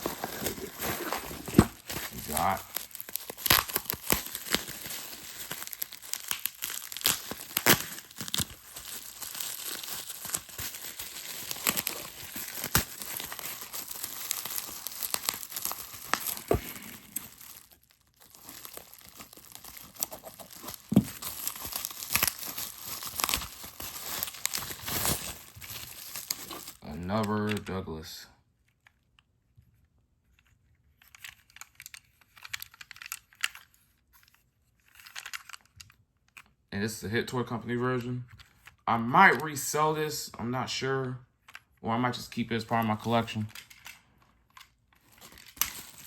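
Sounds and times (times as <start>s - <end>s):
packing material crinkling and tearing: 0.0s - 27.6s, 42.6s - 46.0s.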